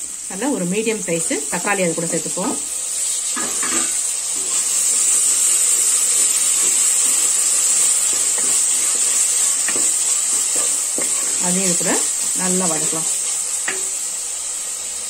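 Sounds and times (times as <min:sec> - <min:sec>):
tomatoes sizzling in hot oil: 0:00.0 - 0:15.0
wooden spatula stirring: 0:04.4 - 0:14.0.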